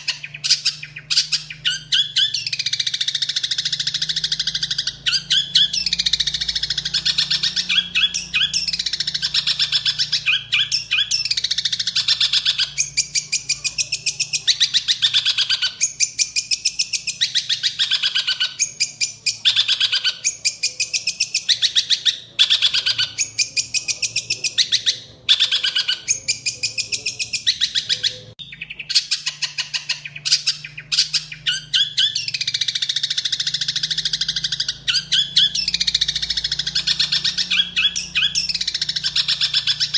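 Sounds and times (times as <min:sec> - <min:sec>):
shrike singing harsh chattering song: 0:00.0 - 0:39.9.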